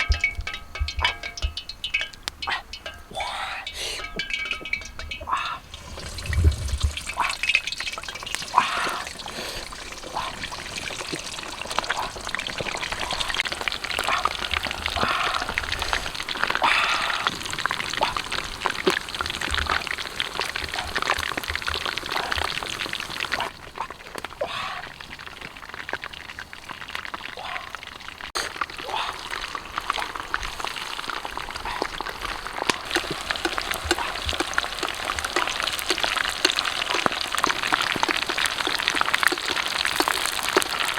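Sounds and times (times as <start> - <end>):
low thumps: 0.0 - 3.1
water pouring and sloshing: 0.0 - 40.9
small clicks and crackles: 10.6 - 27.3, 29.4 - 40.9.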